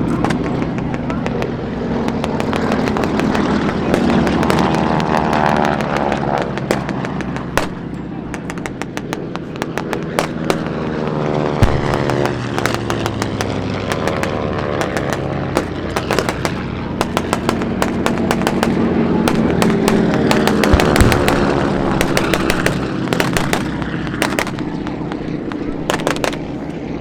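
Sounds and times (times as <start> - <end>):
propeller planes flying low: 0.0 - 27.0
crackle of gunfire pops: 0.1 - 10.8, 11.6 - 26.5
deep boom: 11.6 - 25.1.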